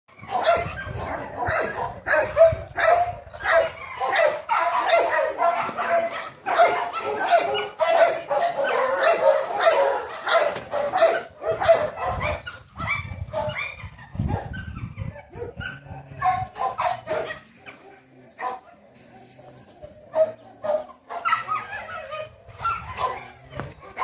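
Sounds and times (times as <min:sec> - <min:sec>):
dog whining and yipping: 0:12.0 - 0:16.0.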